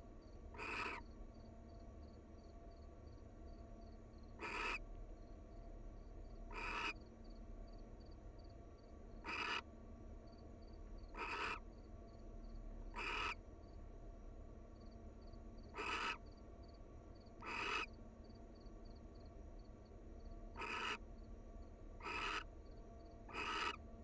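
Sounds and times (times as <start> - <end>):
barn owl screeching: 0.6 - 1.1, 4.4 - 4.8, 6.5 - 7.0, 9.2 - 9.6, 11.1 - 11.6, 12.9 - 13.4, 15.7 - 16.2, 17.4 - 17.9, 20.6 - 21.0, 22.0 - 22.5, 23.3 - 23.8.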